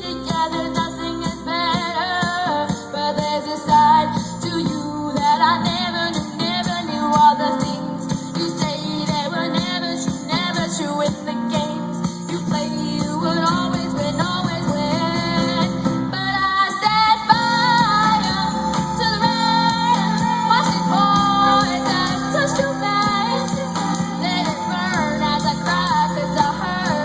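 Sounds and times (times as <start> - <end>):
live band playing pop ballad: 0.0 - 27.0
woman singing: 0.0 - 27.0.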